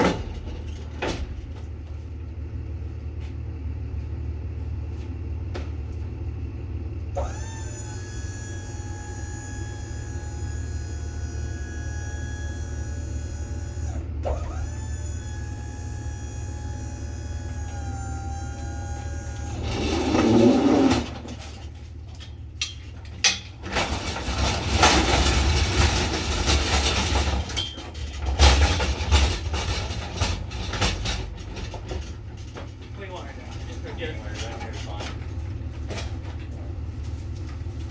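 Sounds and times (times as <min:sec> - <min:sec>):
freight clattering and rattling: 0:00.0 - 0:02.0, 0:18.7 - 0:37.9
truck engine rumbling: 0:00.0 - 0:37.9.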